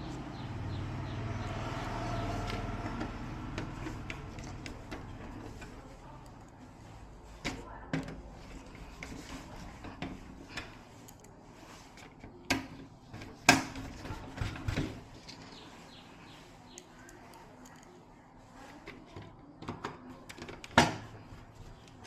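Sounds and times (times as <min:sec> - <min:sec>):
hard objects knocking and clicking: 0:02.2 - 0:05.9, 0:07.4 - 0:10.9, 0:12.1 - 0:15.4, 0:18.8 - 0:22.0.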